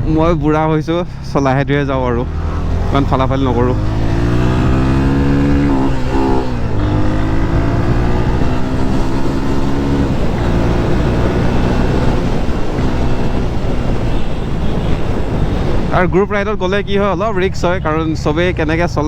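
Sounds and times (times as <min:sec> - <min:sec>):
motorcycle engine running: 0:01.6 - 0:15.9.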